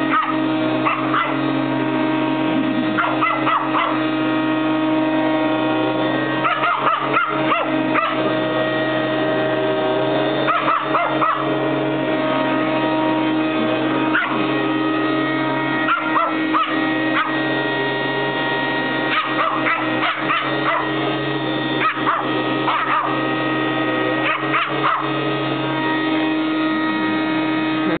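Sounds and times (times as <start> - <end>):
small dog barking and yipping: 0.0 - 1.6, 2.9 - 4.3, 6.3 - 8.4, 10.2 - 14.6, 15.3 - 23.4, 24.0 - 25.4
vacuum cleaner motor hum: 0.0 - 28.0.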